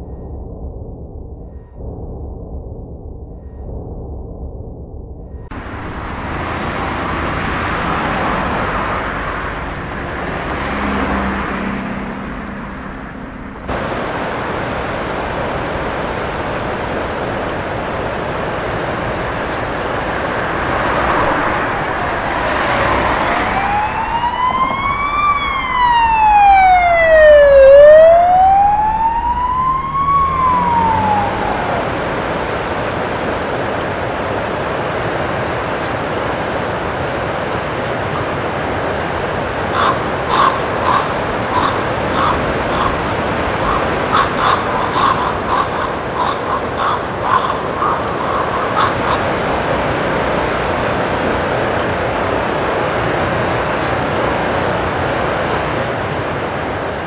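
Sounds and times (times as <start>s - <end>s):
steady rushing noise: 0.0s - 57.0s
siren wailing: 5.3s - 13.9s, 16.4s - 33.1s, 39.7s - 52.2s.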